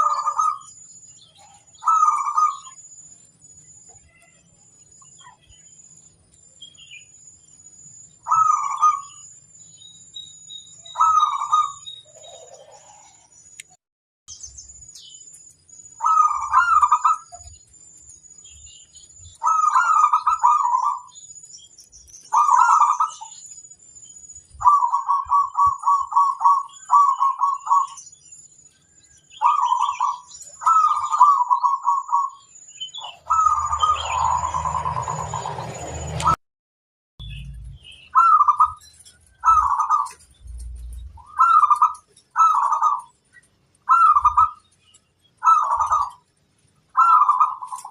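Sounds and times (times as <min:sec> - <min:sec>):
dove cooing: 0:00.0 - 0:00.7, 0:01.4 - 0:02.8, 0:08.3 - 0:09.2, 0:10.9 - 0:13.3, 0:16.0 - 0:17.5, 0:19.4 - 0:21.2, 0:22.3 - 0:23.4, 0:24.6 - 0:28.0, 0:29.4 - 0:32.4, 0:33.0 - 0:35.6, 0:38.2 - 0:43.1, 0:43.9 - 0:44.6, 0:45.4 - 0:46.2, 0:47.0 - 0:47.9.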